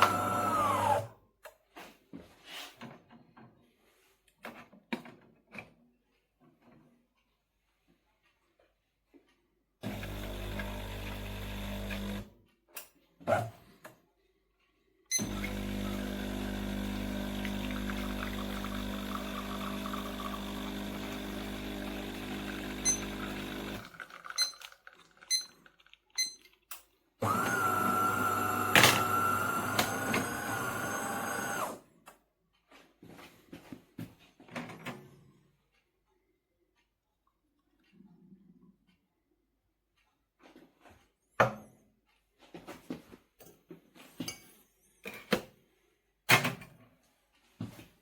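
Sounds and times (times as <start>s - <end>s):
coffee machine motor hum: 0.0s - 1.1s, 9.8s - 12.3s, 15.2s - 24.0s, 27.2s - 31.8s.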